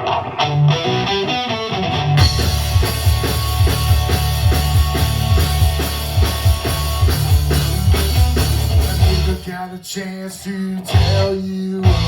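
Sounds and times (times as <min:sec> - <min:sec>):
bass guitar: 0:00.0 - 0:09.6, 0:10.8 - 0:12.0
distorted electric guitars: 0:00.0 - 0:12.0
drum kit beat: 0:02.2 - 0:09.5, 0:10.9 - 0:12.0.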